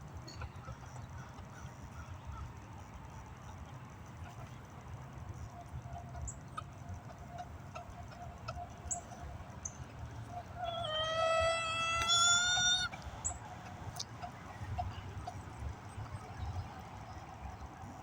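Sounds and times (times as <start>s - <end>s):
hens clucking: 0.2s - 18.0s
rooster crowing: 10.5s - 13.0s.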